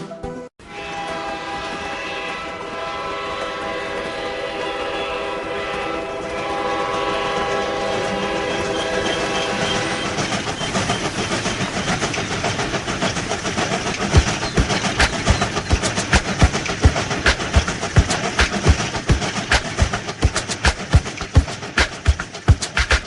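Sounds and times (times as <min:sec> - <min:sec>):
train horn blast: 0:00.6 - 0:10.2
train wheels clickety-clack: 0:00.8 - 0:23.0.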